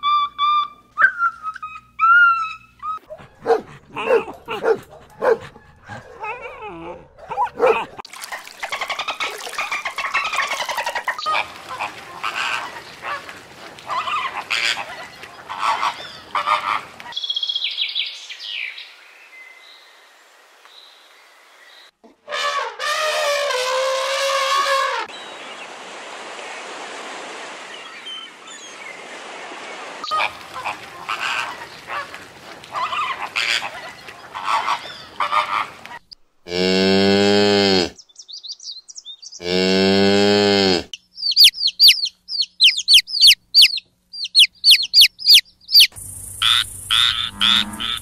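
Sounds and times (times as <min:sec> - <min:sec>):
goose honking: 0:10.3 - 0:16.9, 0:30.1 - 0:35.8
steady hiss: 0:45.9 - 0:47.3
elephant call: 0:46.4 - 0:48.0.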